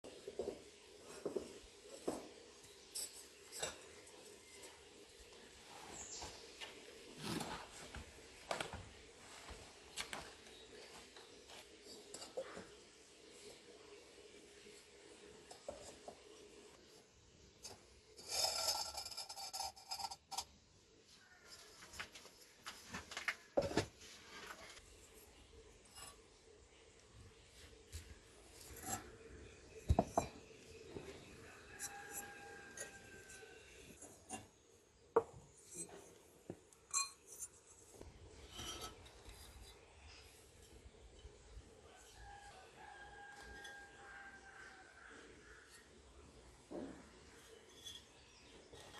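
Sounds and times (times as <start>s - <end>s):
fired clay scraping and rubbing: 0.4s - 8.3s, 17.6s - 20.5s, 22.8s - 26.5s, 27.6s - 34.6s, 35.2s - 48.9s
ceramic pieces clinking: 17.6s - 20.5s, 36.8s - 37.7s
ceramic scraping on hard surface: 17.6s - 20.5s, 28.5s - 34.6s, 35.2s - 36.2s, 36.9s - 40.4s, 46.7s - 48.9s.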